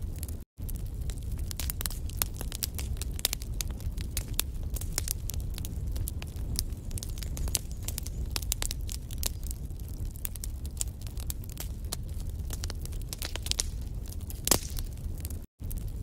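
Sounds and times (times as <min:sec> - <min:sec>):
logs crackling and popping: 0:00.0 - 0:16.0
low rumble of flames: 0:00.0 - 0:16.0.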